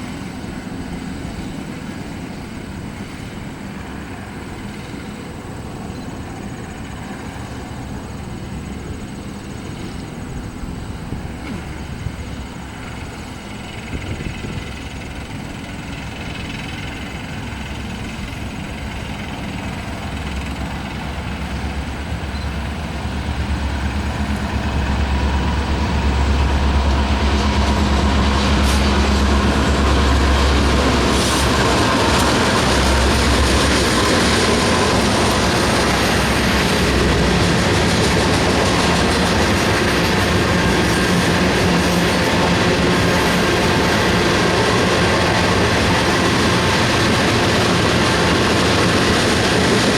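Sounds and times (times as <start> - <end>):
rumble and clatter of train cars: 0.0 - 49.9
train engine drone: 0.0 - 49.9.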